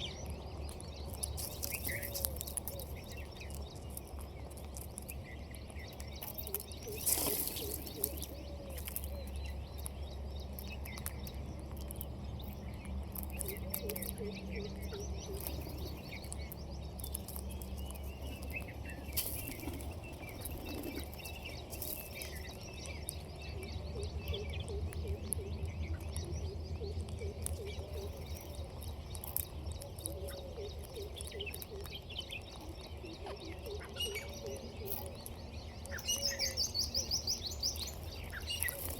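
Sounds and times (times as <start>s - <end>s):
birds chirping: 0.0s - 38.9s
low arching bird calls: 12.4s - 38.9s.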